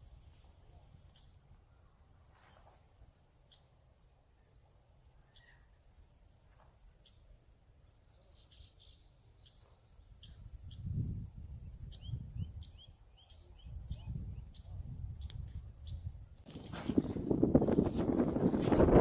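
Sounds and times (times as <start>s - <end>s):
small birds chirping: 0.7s - 2.8s, 3.4s - 6.0s, 6.6s - 18.6s
low gusting rumble: 10.3s - 12.9s, 13.7s - 19.0s.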